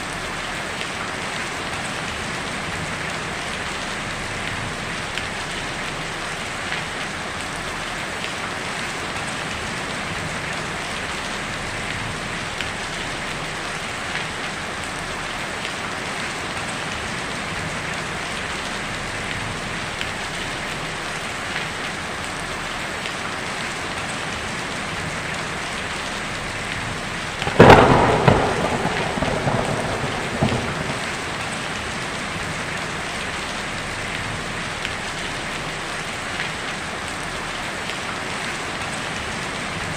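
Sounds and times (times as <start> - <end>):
heavy rain on a tin roof: 0.0 - 39.9
thunderclap: 27.4 - 32.6.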